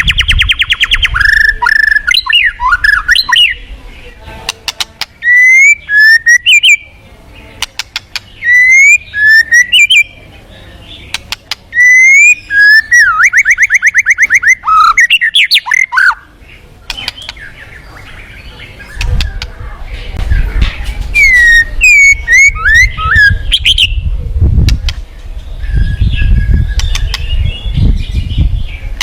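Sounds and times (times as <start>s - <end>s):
bird singing whistled phrases: 0.0s - 3.6s, 5.2s - 6.9s, 8.4s - 10.2s, 11.7s - 16.3s, 21.1s - 24.0s, 25.6s - 28.8s
sharp bird clicking notes: 4.4s - 5.7s, 7.6s - 9.0s, 11.0s - 12.3s, 16.8s - 17.6s, 24.6s - 25.0s, 26.7s - 27.4s
fast even bird trill: 4.8s - 6.9s, 7.8s - 10.1s, 11.1s - 16.3s, 21.2s - 24.0s.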